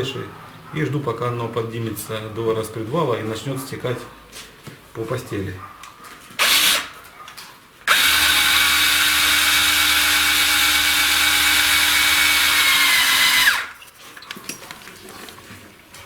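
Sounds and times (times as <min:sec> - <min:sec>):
electric drill spinning: 0:06.4 - 0:06.9, 0:07.9 - 0:13.8.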